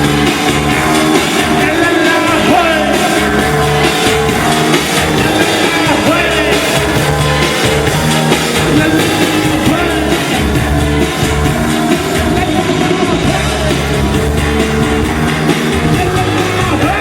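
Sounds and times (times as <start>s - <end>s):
live electronic rock band music: 0.0s - 17.0s
person singing: 0.0s - 17.0s
steady bass line: 0.0s - 17.0s.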